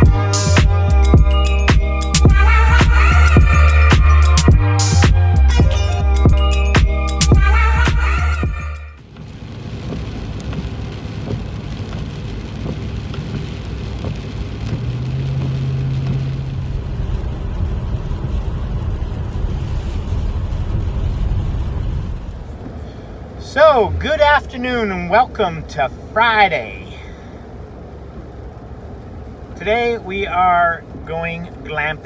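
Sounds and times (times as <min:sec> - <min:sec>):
engine and road rumble: 0:00.0 - 0:32.0
tyres hissing on wet road: 0:07.2 - 0:32.0.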